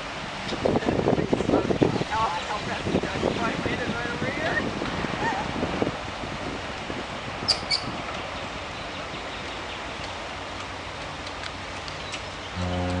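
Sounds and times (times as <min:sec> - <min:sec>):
river water: 0:00.0 - 0:13.0
wind: 0:00.0 - 0:13.0
high bird chirps: 0:07.5 - 0:07.9.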